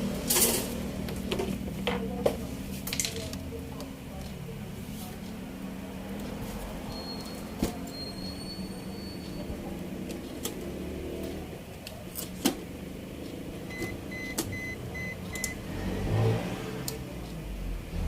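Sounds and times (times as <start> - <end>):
quick electronic beeps: 13.7 - 15.6.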